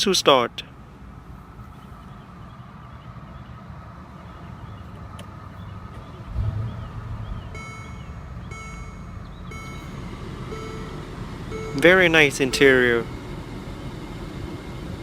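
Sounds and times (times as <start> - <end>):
car engine idling: 0.6 - 15.0
electronic warning chime: 7.5 - 13.2.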